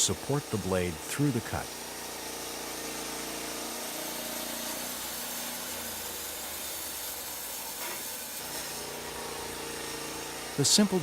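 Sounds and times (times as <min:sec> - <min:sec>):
band blade cutting log: 0:00.0 - 0:11.0
sawmill engine running: 0:00.0 - 0:11.0.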